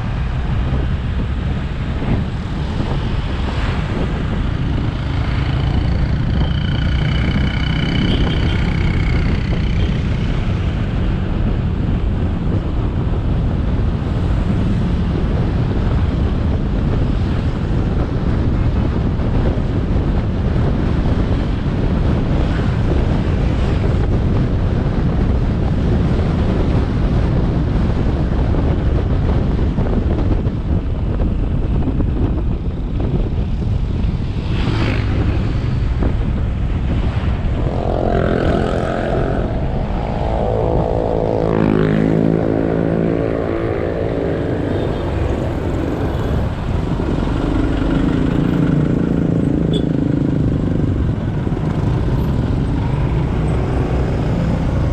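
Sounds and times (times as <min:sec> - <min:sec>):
road rumble: 0:00.0 - 0:54.9
wind on microphone: 0:00.0 - 0:54.9
motorbike engine: 0:03.9 - 0:10.9.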